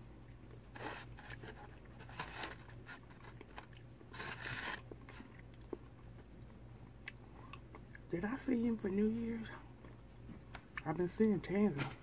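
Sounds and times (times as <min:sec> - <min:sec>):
chewing crispy fried fish: 0:00.1 - 0:08.1.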